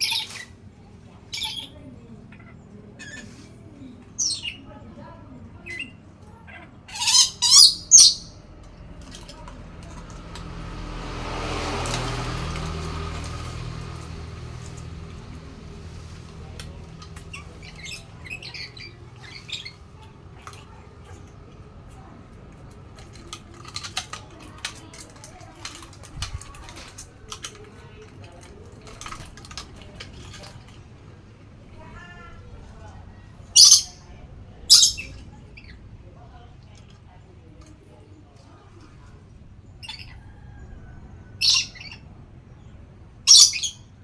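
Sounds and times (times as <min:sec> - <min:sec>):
parrot squawking and chirping: 0:00.0 - 0:00.6, 0:01.3 - 0:03.4, 0:05.6 - 0:08.4, 0:17.2 - 0:19.9, 0:33.5 - 0:34.0, 0:34.7 - 0:35.7, 0:41.4 - 0:42.0, 0:43.3 - 0:43.8.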